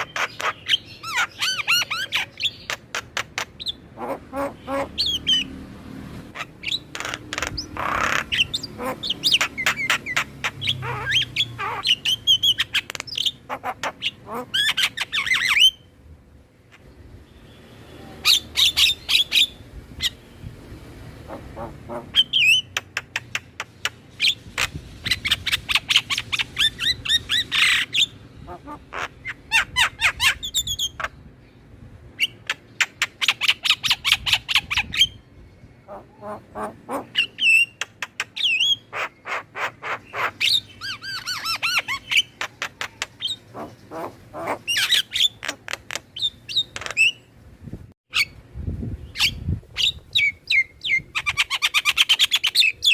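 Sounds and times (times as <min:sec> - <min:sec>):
starling chattering song: 0:00.0 - 0:05.6, 0:06.3 - 0:15.9, 0:21.2 - 0:31.3, 0:32.2 - 0:47.3.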